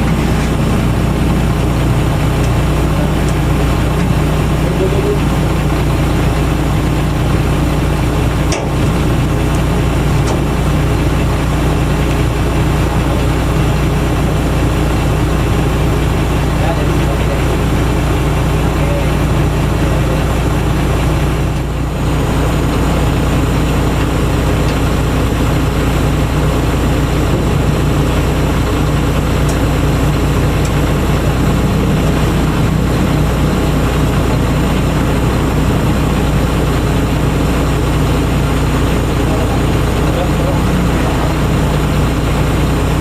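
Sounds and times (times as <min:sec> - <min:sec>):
heavy engine idling: 0:00.0 - 0:43.0.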